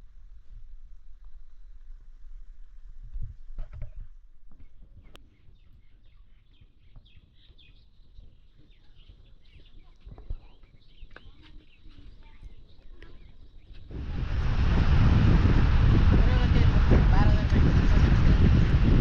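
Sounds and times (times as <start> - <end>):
small birds chirping: 4.5 - 13.9
loud rushing noise: 13.9 - 19.0.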